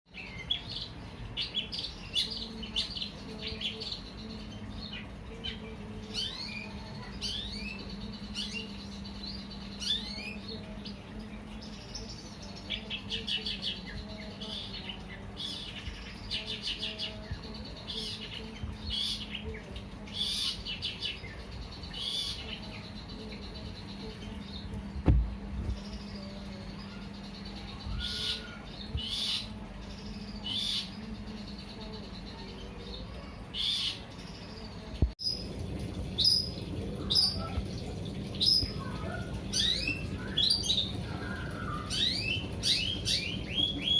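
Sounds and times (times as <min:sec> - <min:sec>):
faint steady hum: 0:00.1 - 0:43.9
bird calling with high chirps: 0:11.8 - 0:24.8, 0:25.6 - 0:35.5, 0:38.3 - 0:43.9
thump: 0:25.0 - 0:25.3.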